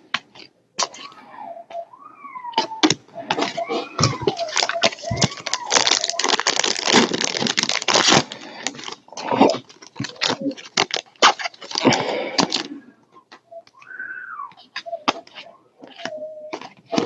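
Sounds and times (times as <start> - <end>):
foil wrappers tearing and crinkling: 3.4 - 12.7.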